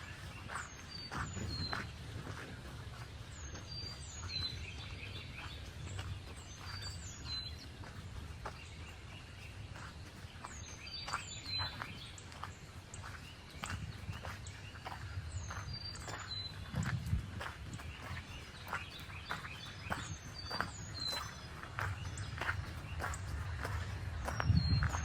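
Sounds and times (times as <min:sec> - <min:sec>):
footsteps on forest path: 0:00.0 - 0:25.0
songbird singing whistles: 0:17.9 - 0:25.0
low rumble: 0:21.8 - 0:25.0.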